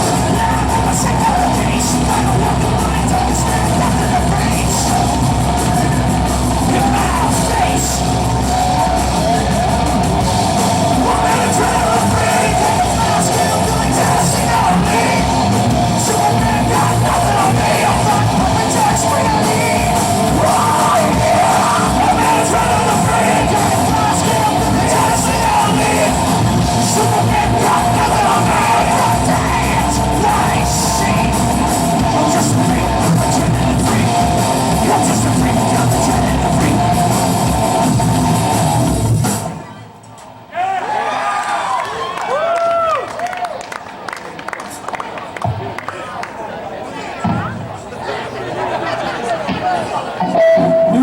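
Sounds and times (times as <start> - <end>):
person singing: 0.0 - 37.6
live rock band playing: 0.0 - 39.7, 50.2 - 51.0.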